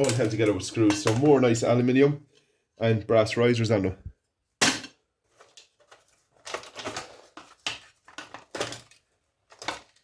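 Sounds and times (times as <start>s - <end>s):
metal and plastic parts rattling: 0.0s - 1.8s, 4.7s - 10.0s.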